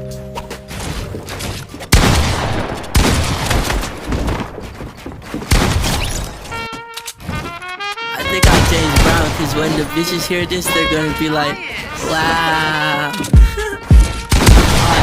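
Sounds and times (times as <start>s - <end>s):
music: 0.0s - 1.9s, 6.2s - 15.0s
rapid gunfire with booms: 1.9s - 4.6s, 8.4s - 9.6s, 14.3s - 15.0s.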